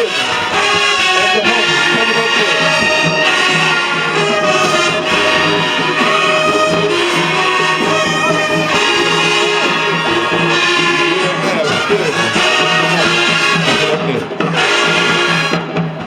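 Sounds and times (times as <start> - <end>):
marching band brass tune: 0.0 - 16.0.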